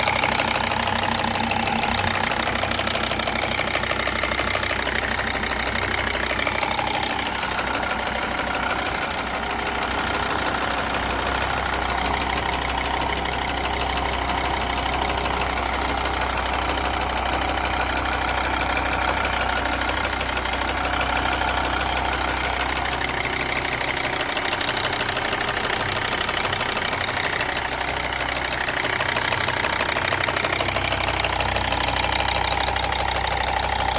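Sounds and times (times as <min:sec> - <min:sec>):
diesel engine running: 0:00.0 - 0:33.9
engine banging: 0:00.0 - 0:33.9
engine ticking: 0:00.0 - 0:33.9.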